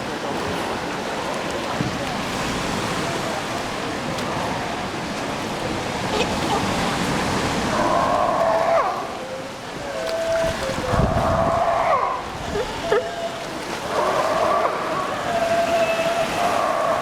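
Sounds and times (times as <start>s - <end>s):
sea water rushing: 0.0s - 17.0s
wind on microphone: 9.8s - 17.0s.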